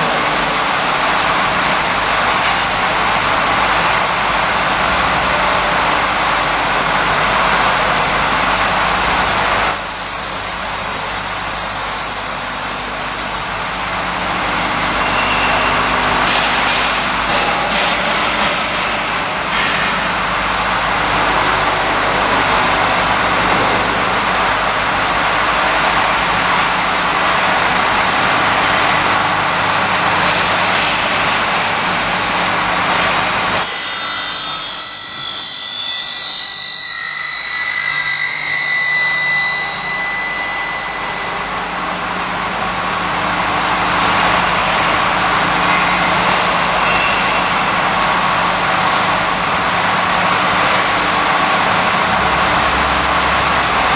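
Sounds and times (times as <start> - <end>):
milling machine running: 0.0 - 53.9
high whining tones: 33.0 - 53.9.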